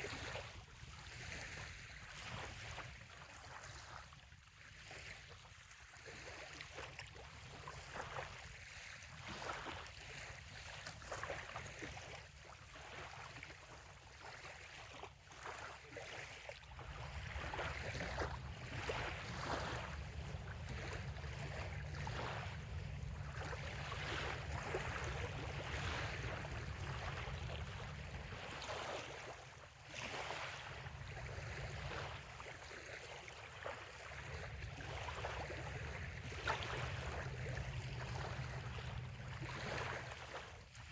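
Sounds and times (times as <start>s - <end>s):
small waves lapping shore: 0.0s - 40.9s
steady low rumble: 16.8s - 28.8s, 34.1s - 40.6s.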